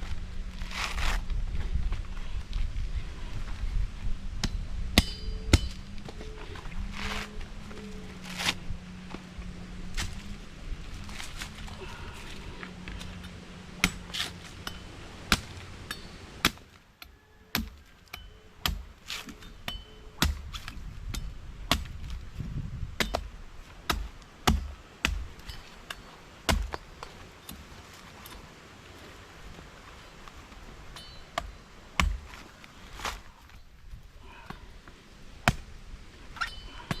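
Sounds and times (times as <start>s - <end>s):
sharp knocks with metallic ring: 4.5s - 5.8s.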